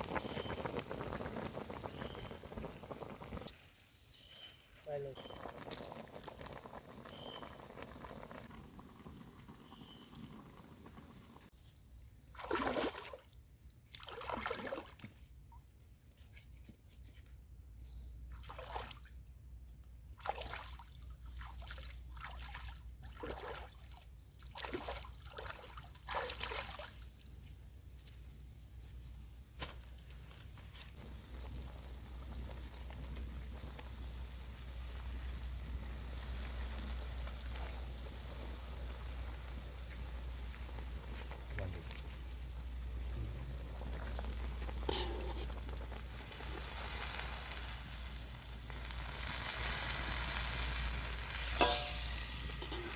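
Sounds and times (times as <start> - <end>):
water sloshing and splashing: 12.4 - 13.3, 13.9 - 15.2, 18.4 - 19.2, 20.2 - 27.1.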